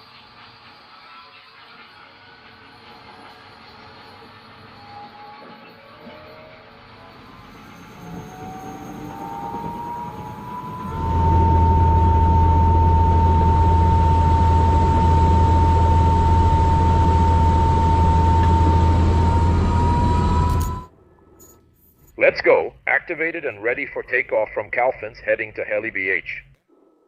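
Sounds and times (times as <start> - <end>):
helicopter turbine whine: 5.9 - 21.4
helicopter engine low drone: 6.5 - 21.4.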